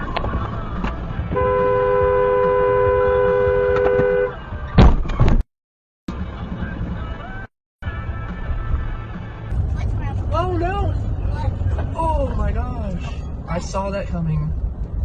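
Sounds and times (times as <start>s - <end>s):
traffic noise: 0.0s - 5.4s, 6.1s - 15.0s
two-tone car horn: 1.3s - 4.4s.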